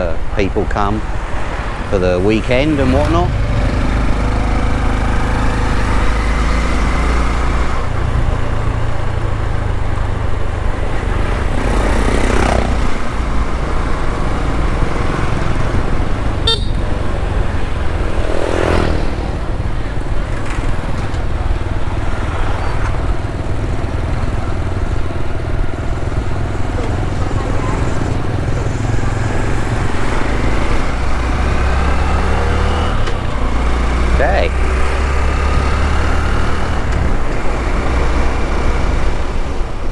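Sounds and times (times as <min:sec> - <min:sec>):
vehicles passing: 0:00.0 - 0:39.9
motorbike engine running: 0:15.5 - 0:31.6
horn tooting: 0:16.4 - 0:17.3.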